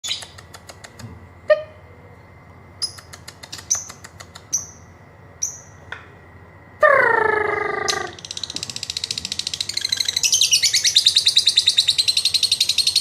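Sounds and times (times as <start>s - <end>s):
bird ticking clicks: 2.8s - 4.7s.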